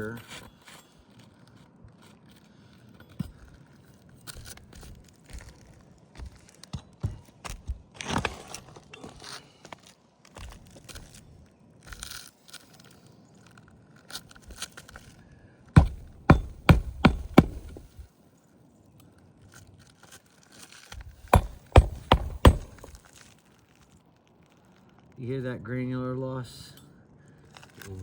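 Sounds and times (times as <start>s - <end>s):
sharp knocks: 15.8s - 18.0s, 21.0s - 23.0s
shingles scraping and crackling: 15.8s - 18.0s, 20.9s - 23.0s.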